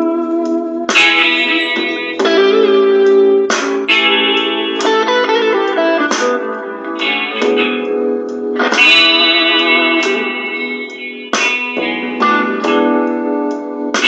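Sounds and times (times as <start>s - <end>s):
electric guitar playing blues: 0.0s - 14.0s.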